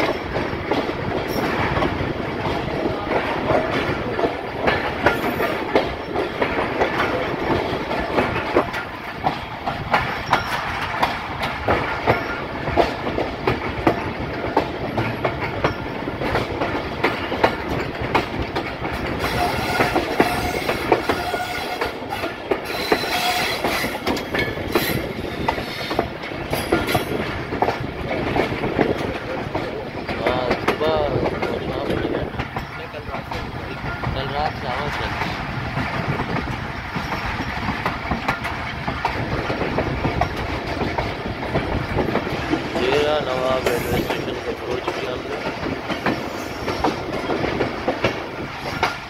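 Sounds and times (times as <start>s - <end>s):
train rumbling on track: 0.0s - 49.0s
wheels clacking over rail joints: 0.0s - 49.0s
wheel squeal: 19.2s - 21.8s, 22.6s - 24.0s.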